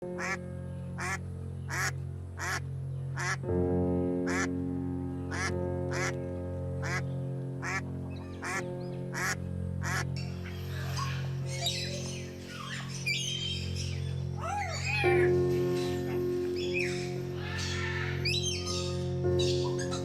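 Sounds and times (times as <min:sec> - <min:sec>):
calm background music: 0:00.0 - 0:20.0
duck quacking: 0:01.0 - 0:02.6, 0:03.2 - 0:03.4, 0:04.3 - 0:04.5, 0:05.3 - 0:06.1, 0:08.4 - 0:10.1.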